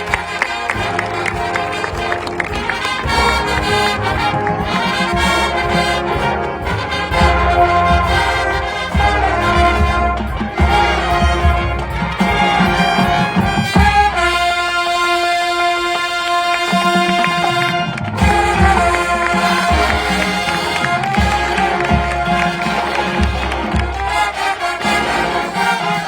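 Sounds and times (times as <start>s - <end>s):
marching band brass: 0.0s - 26.0s.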